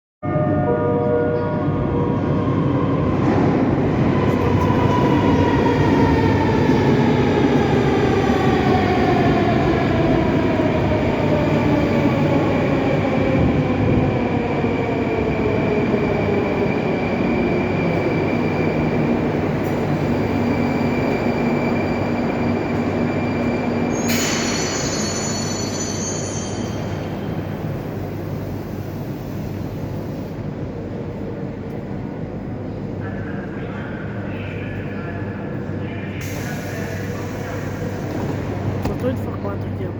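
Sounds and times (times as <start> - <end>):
train rolling rumble: 1.4 - 39.9
hiss with high squeal: 23.9 - 27.2.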